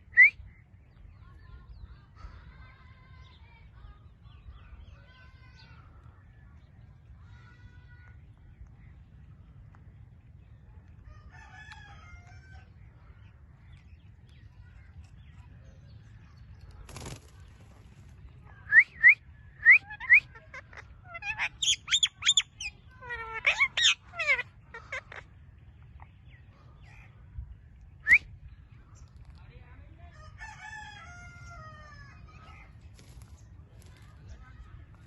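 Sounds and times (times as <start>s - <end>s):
parrot rapid calls and chatter: 10.5s - 26.2s, 29.0s - 35.0s.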